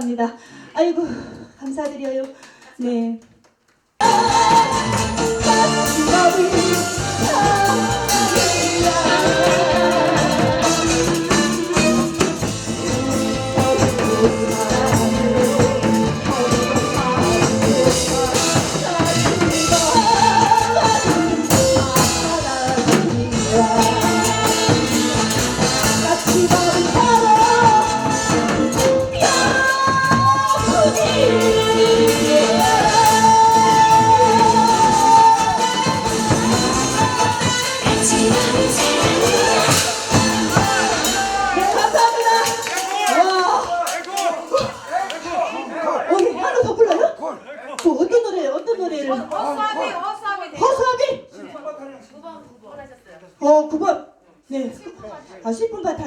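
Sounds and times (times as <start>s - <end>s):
person singing: 4.0s - 43.7s
musical accompaniment with percussion beat: 4.0s - 45.5s.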